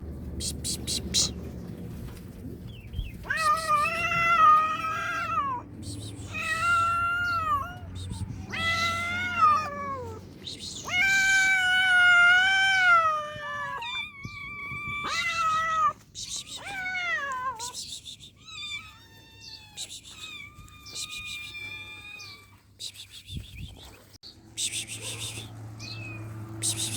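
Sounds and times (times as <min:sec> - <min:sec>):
cat meowing: 0:03.2 - 0:17.8, 0:18.4 - 0:22.7.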